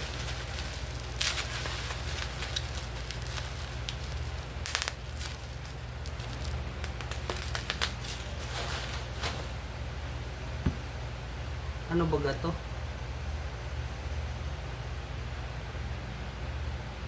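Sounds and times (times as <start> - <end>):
packaging crinkling: 0.0 - 9.7
steady low hum: 0.0 - 17.0.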